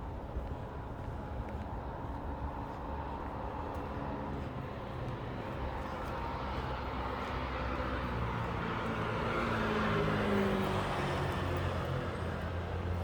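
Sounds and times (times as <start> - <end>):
city road traffic rumble: 0.0 - 13.0.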